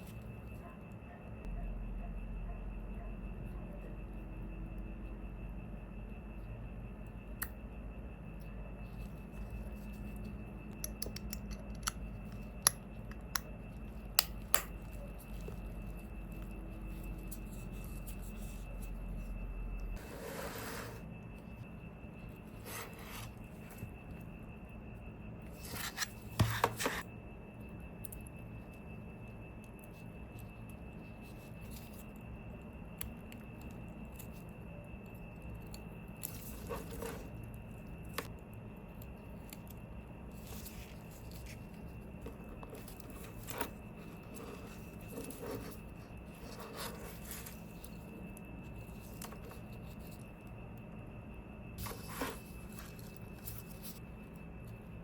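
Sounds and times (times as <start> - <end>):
faint high whine: 0.0 - 55.0
steady background hum: 0.0 - 55.0.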